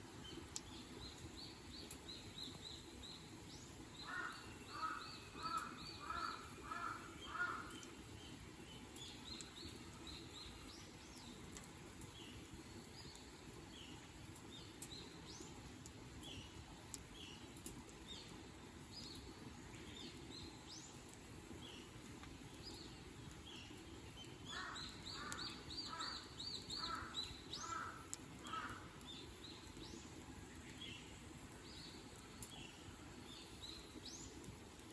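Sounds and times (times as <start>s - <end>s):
small birds chirping: 0.2s - 34.9s
crow cawing: 4.0s - 7.8s, 24.5s - 26.2s, 26.8s - 28.9s.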